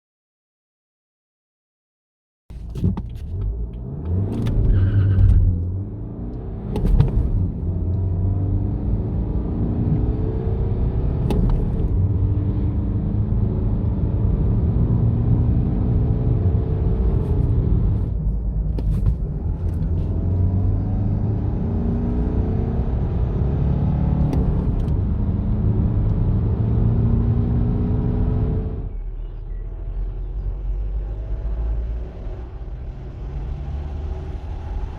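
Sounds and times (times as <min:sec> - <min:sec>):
diesel engine accelerating through gears: 0:02.5 - 0:34.9.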